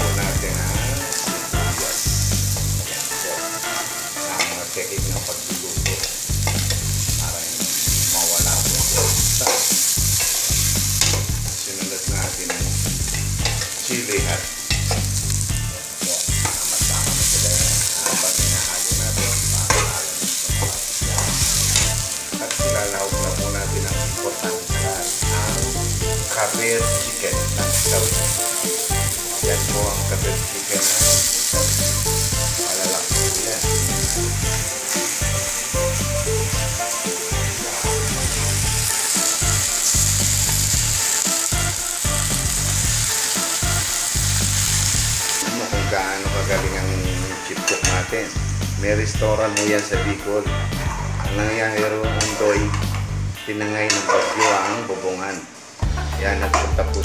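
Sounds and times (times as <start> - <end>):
vegetables sizzling in oil: 0.0 - 57.0
metal ladle scraping a pot: 53.9 - 55.4.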